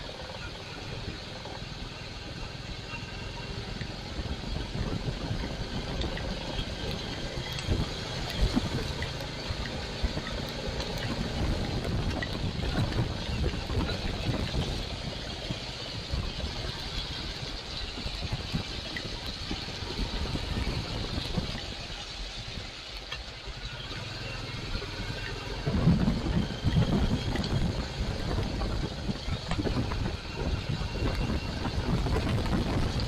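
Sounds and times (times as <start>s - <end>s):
motorcycle engine running: 0.0s - 33.0s
road and wind noise: 0.0s - 33.0s.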